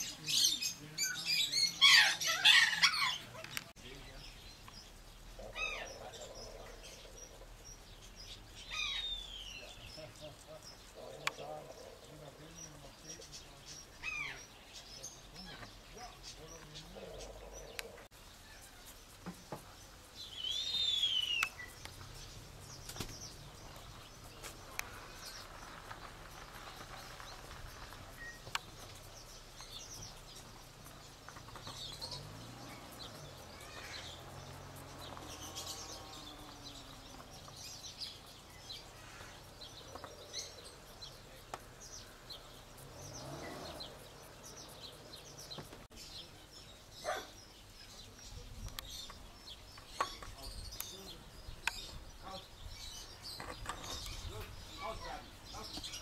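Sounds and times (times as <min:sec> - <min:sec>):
faint high bird chirps: 0:00.0 - 0:56.0
bird whistled call: 0:20.3 - 0:21.8.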